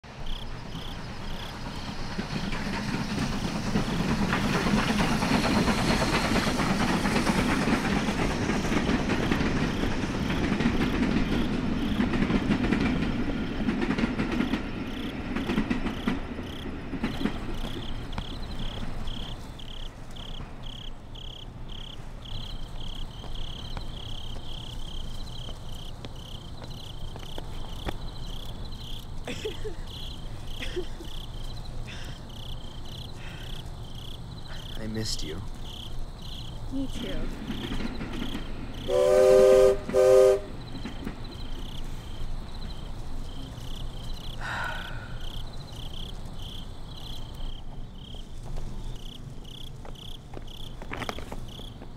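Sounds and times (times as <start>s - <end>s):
crickets chirping: 0.0s - 51.9s
train rumbling and clattering: 0.0s - 51.9s.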